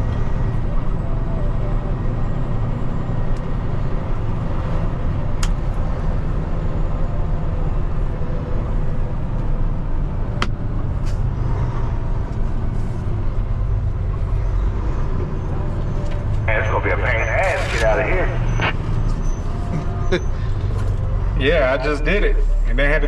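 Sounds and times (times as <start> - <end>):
diesel truck engine rumble: 0.0 - 23.0.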